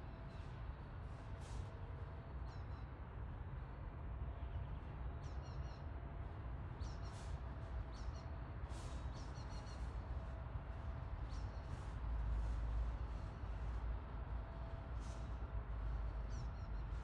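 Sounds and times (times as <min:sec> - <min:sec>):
steady low rumble: 0:09.8 - 0:17.0.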